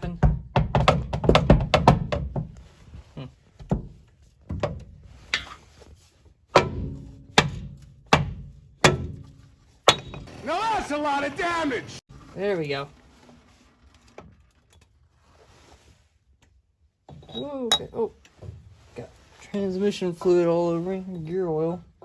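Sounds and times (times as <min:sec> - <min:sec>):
metal knocks on housing: 0:06.6 - 0:10.3.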